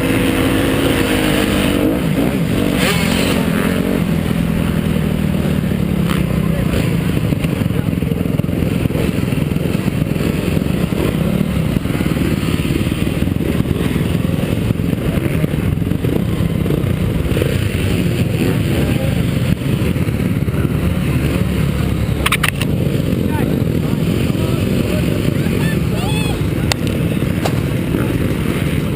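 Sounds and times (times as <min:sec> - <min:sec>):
motocross bike engine running: 0:00.0 - 0:28.9
sharp clicks: 0:22.2 - 0:22.7.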